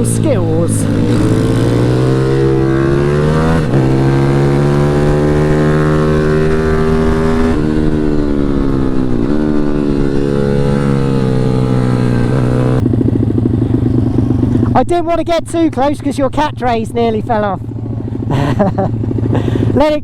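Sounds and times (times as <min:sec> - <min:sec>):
pit bike engine revving: 0:00.0 - 0:14.8.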